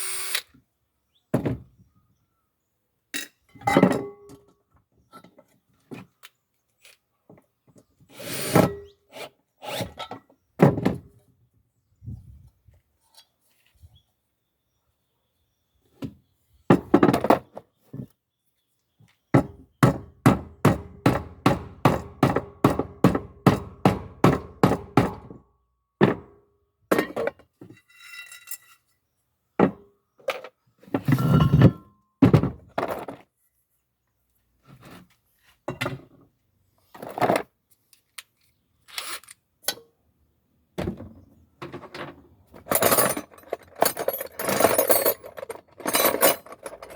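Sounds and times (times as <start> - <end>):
metal clinks: 42.7 - 46.9.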